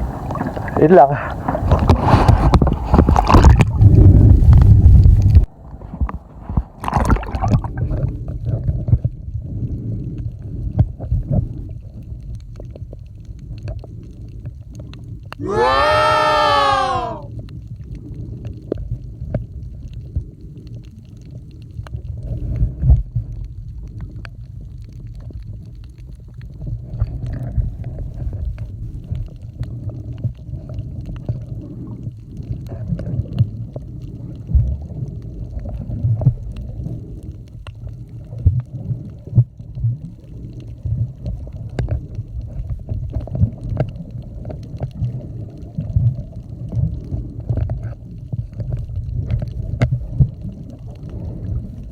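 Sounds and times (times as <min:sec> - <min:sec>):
underwater rumbling of water: 0:00.0 - 0:51.9
underwater clicks and pops: 0:01.4 - 0:09.2.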